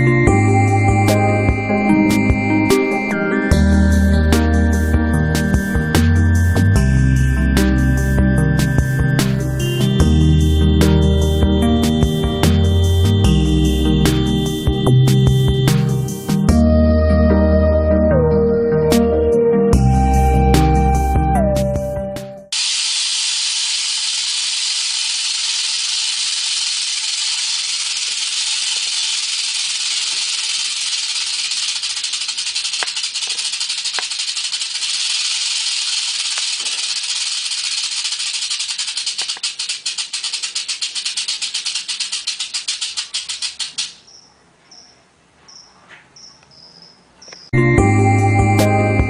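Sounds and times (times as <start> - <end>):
rattlesnake rattling: 3.7 - 16.4, 22.5 - 44.3.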